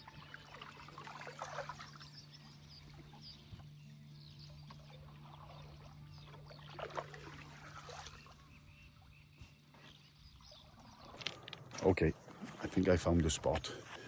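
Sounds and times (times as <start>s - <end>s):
water splashes: 0.0s - 2.4s, 4.8s - 8.6s
paddle strokes in water: 0.0s - 3.7s, 4.6s - 8.6s.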